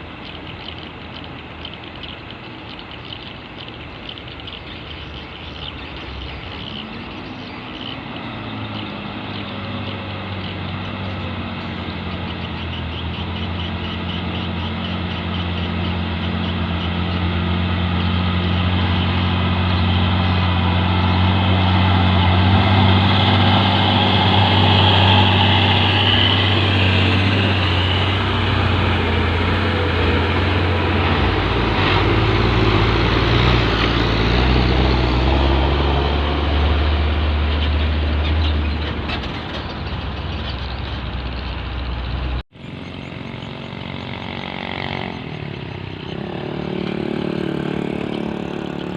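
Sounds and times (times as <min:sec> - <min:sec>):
diesel truck engine running: 0:05.1 - 0:48.9.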